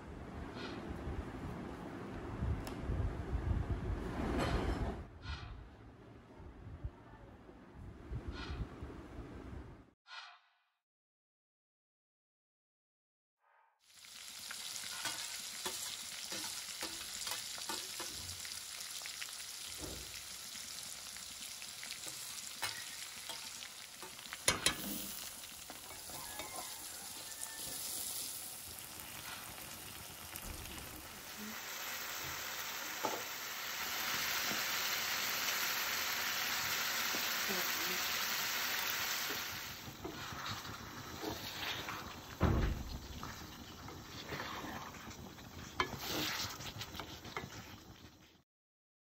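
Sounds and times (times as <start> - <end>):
onion frying in hot oil: 13.8 - 48.4
utensil clinking on pan: 22.5 - 25.0.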